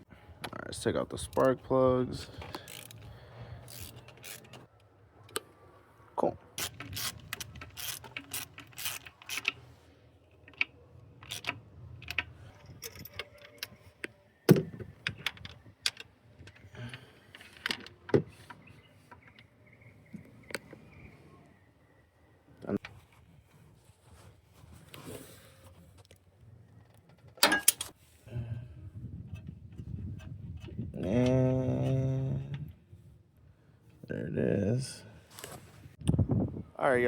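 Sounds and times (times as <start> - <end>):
socket wrench clicking: 6.6 - 9.6, 10.5 - 12.3.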